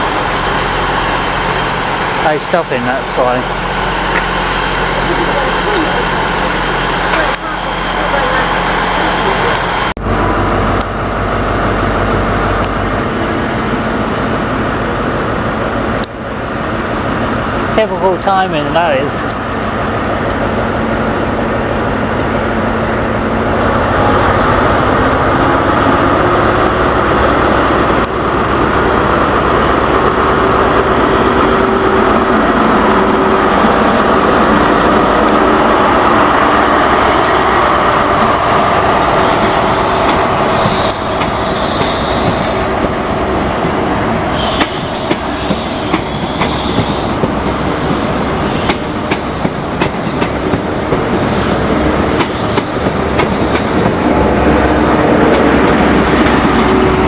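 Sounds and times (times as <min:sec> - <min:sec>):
train rumbling: 0:00.0 - 0:57.0
train wheel squeal: 0:00.3 - 0:02.5, 0:03.3 - 0:03.7, 0:39.2 - 0:42.9, 0:44.3 - 0:55.1.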